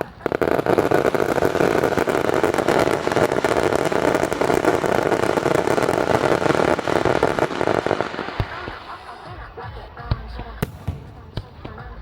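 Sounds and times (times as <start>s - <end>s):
fireworks bangs and crackle: 0.0s - 12.0s.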